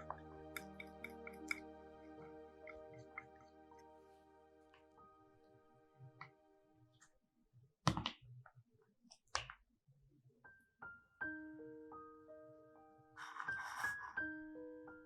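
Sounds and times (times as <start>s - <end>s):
gentle piano music: 0.0s - 7.0s, 10.5s - 15.0s.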